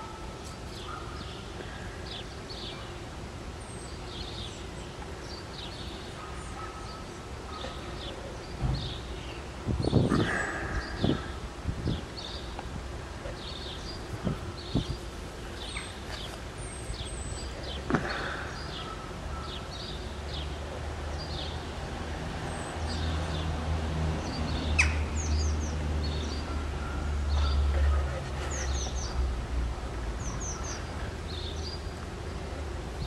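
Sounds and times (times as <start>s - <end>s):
small birds chirping: 3.6s - 21.7s.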